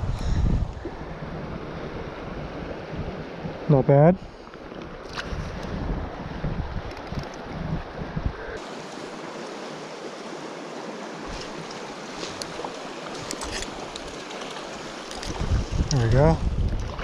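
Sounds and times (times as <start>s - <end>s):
wind buffeting microphone: 0.0s - 8.7s, 12.4s - 17.0s
river water rushing: 8.6s - 15.6s.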